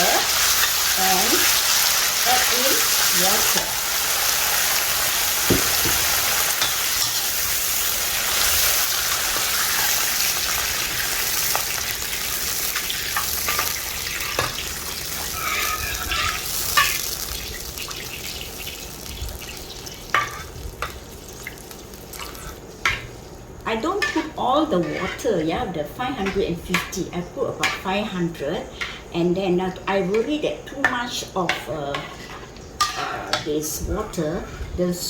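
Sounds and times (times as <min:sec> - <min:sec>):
food sizzling in hot oil: 0:00.0 - 0:25.0
spatula scraping a pan: 0:13.2 - 0:17.0, 0:24.0 - 0:25.4, 0:31.9 - 0:33.5.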